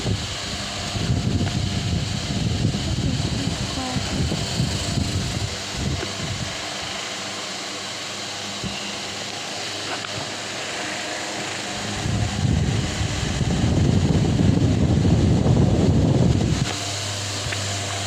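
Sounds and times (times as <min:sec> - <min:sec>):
wind rumble on microphone: 0:00.0 - 0:06.9, 0:11.8 - 0:18.0
fan blowing air: 0:00.0 - 0:18.0.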